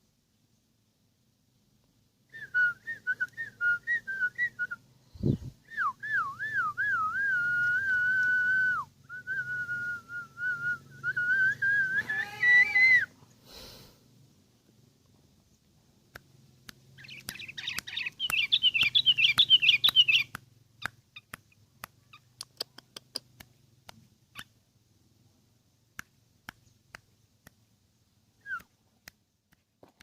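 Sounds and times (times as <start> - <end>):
bird clicks: 16.1 - 24.5
bird chattering song: 16.9 - 23.4.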